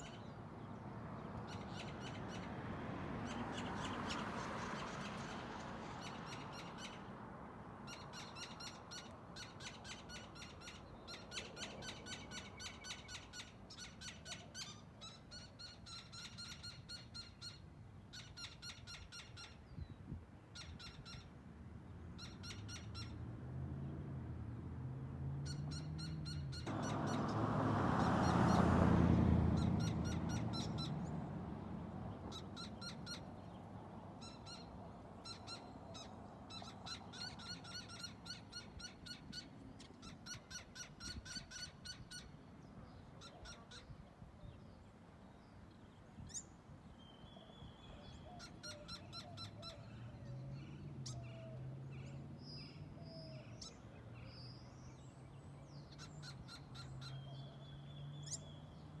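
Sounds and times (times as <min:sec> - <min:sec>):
bird alarm calls: 0:29.6 - 0:31.0.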